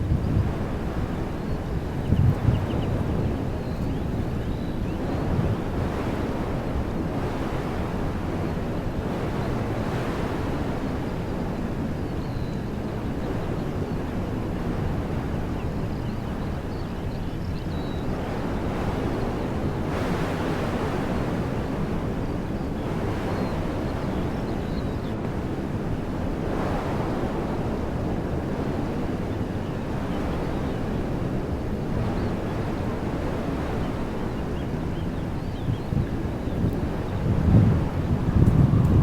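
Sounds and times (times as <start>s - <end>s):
wind rumble on microphone: 0.0s - 39.0s
wind through trees: 0.0s - 39.0s.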